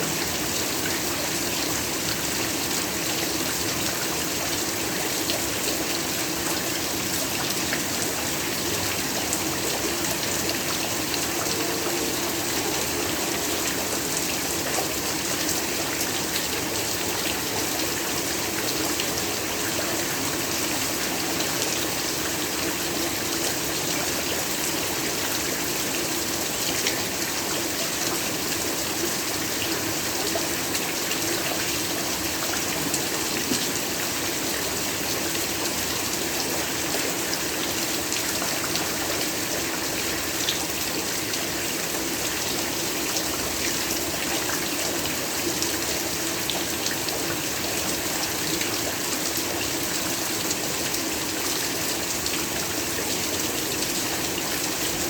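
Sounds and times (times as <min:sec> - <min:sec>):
heavy rainfall: 0:00.0 - 0:55.0.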